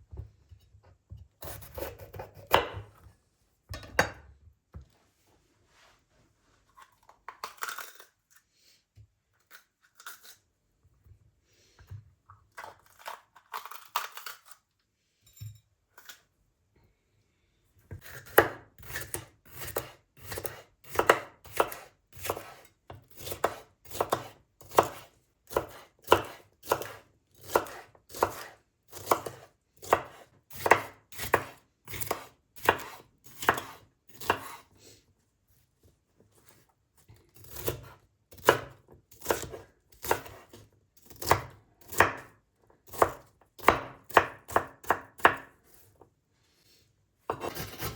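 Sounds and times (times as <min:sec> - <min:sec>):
knife chopping on cutting board: 0:01.1 - 0:03.1, 0:17.9 - 0:34.6, 0:37.4 - 0:42.3, 0:42.9 - 0:45.8, 0:47.3 - 0:47.9.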